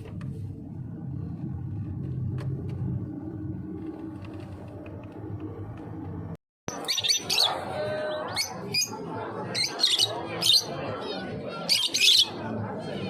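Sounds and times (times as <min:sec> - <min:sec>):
low steady rumble: 0:00.0 - 0:06.4
birds chirping and squawking: 0:06.7 - 0:13.0.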